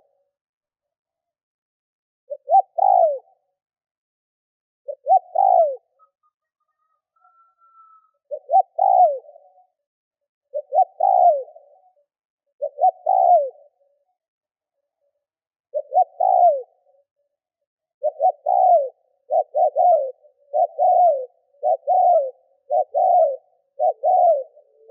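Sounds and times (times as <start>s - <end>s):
dove cooing: 2.3s - 3.5s, 4.9s - 9.8s, 10.5s - 14.0s, 15.7s - 17.1s, 18.0s - 24.9s.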